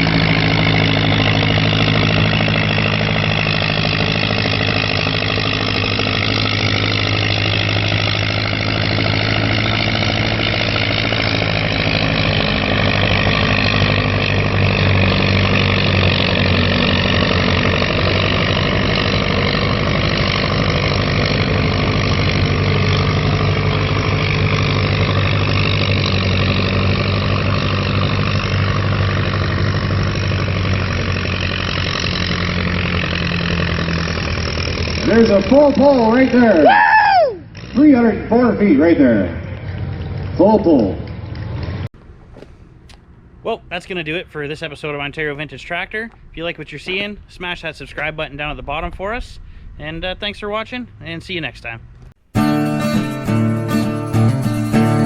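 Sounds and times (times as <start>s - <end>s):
tractor engine under load: 0.0s - 44.8s, 51.8s - 55.0s.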